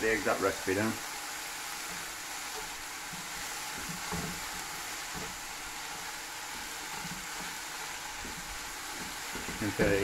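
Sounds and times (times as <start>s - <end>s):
mushrooms and onions sizzling: 0.0s - 10.0s
spatula knocking in pan: 2.6s - 5.5s, 8.2s - 10.0s.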